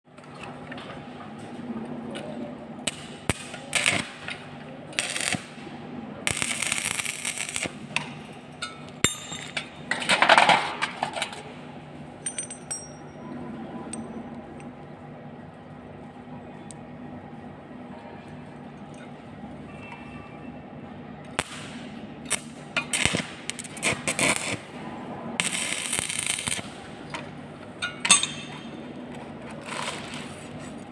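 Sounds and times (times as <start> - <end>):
welding crackling hiss: 2.9 - 7.9, 21.3 - 27.1, 29.6 - 30.7
metal clinks and knocks: 12.2 - 13.2.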